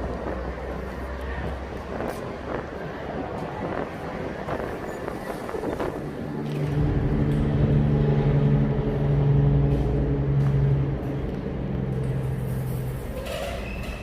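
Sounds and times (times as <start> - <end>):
traffic noise: 0.0 - 14.0
truck diesel engine droning: 5.6 - 13.8.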